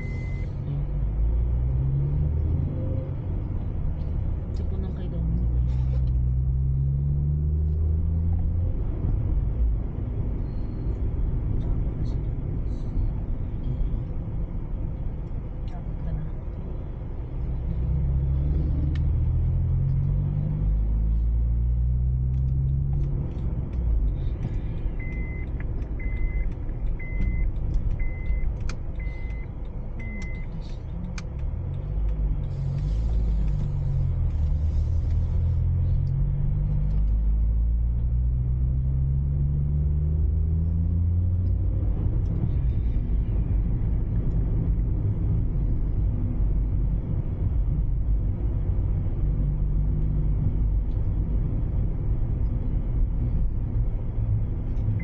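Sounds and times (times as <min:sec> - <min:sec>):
short high electronic beeps: 0:00.0 - 0:00.5
car engine revving through gears: 0:00.0 - 0:09.5, 0:17.3 - 0:55.0
road rumble: 0:00.0 - 0:55.0.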